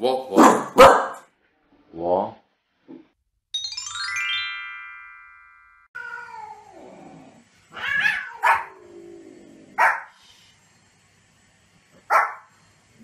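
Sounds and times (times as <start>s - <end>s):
dog barking: 0.4s - 1.3s, 8.0s - 8.7s, 9.8s - 10.1s, 12.1s - 12.5s
cat yowling: 6.0s - 6.9s, 7.7s - 9.0s.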